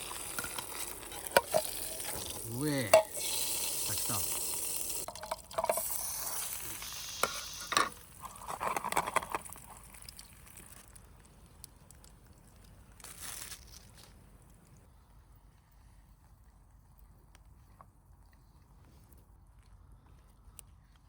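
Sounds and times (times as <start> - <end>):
food sizzling in hot oil: 0.0 - 8.2.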